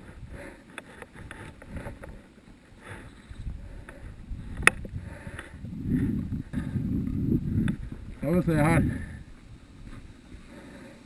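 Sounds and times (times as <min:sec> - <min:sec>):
wind rumble on microphone: 0:00.0 - 0:02.2, 0:02.8 - 0:10.6.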